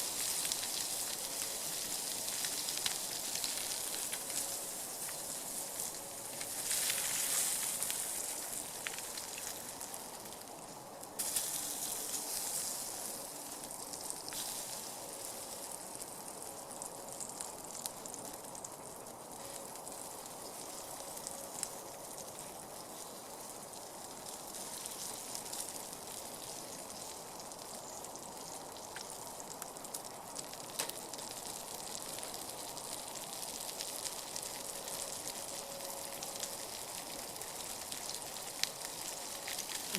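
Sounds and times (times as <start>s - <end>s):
meat sizzling on grill: 0.0s - 39.9s
small popping of grease: 0.1s - 10.4s, 26.4s - 34.4s.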